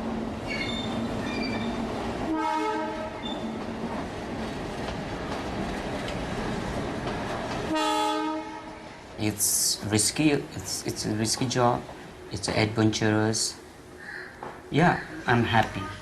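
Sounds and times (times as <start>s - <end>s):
train rumbling: 0.0s - 16.0s
train horn blasts: 2.3s - 3.3s, 7.7s - 8.9s.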